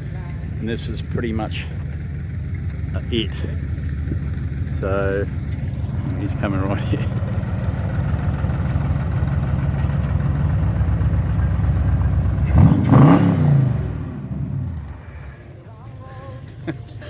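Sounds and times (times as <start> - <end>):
car engine rumbling: 0.0 - 17.0
car engine revving sharply: 2.6 - 15.5.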